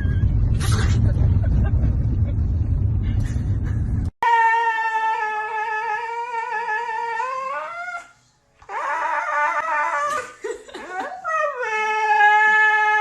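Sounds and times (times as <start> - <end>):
dog howling: 4.2 - 8.1, 8.7 - 10.3, 11.0 - 13.0.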